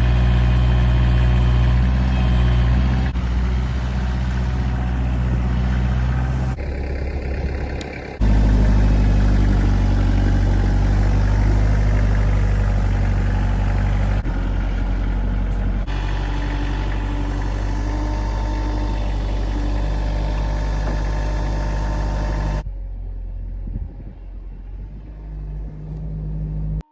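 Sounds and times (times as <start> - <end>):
vehicle engine at low revs: 0.0 - 26.9.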